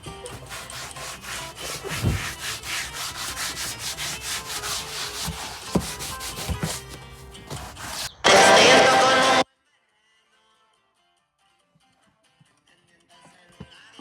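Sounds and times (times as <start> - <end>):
brisk scrubbing: 0.0 - 9.4.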